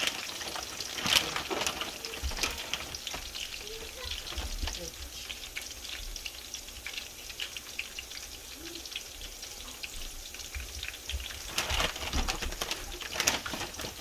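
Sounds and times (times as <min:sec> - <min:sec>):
fries sizzling in hot oil: 0:00.0 - 0:14.0
small crackling pops: 0:00.0 - 0:14.0.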